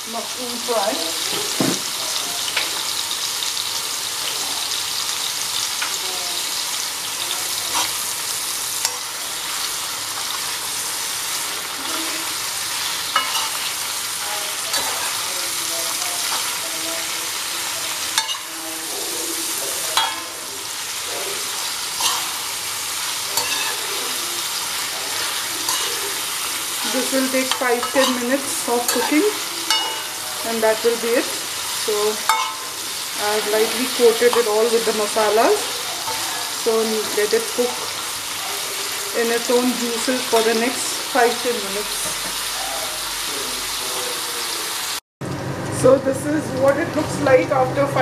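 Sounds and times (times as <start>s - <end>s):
mushrooms and onion sizzling in oil: 0.0s - 48.0s
spatula scraping a pan: 7.3s - 39.1s.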